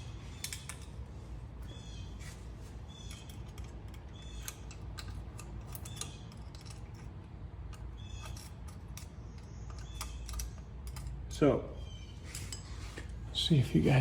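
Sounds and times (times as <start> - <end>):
metallic tool clicks and clinks: 3.1 - 7.1, 7.7 - 11.2.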